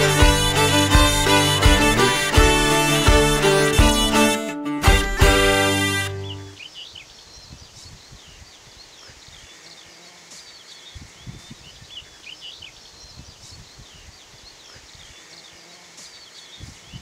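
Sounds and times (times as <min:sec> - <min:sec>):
birds chirping and whistling: 0:06.0 - 0:08.4.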